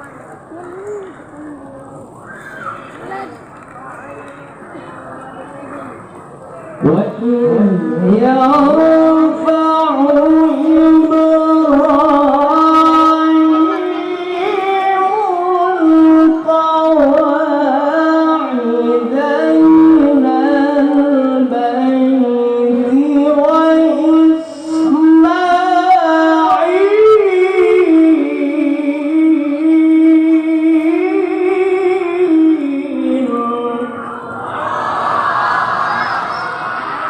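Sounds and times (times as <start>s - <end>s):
man reciting melodically: 6.8s - 34.2s.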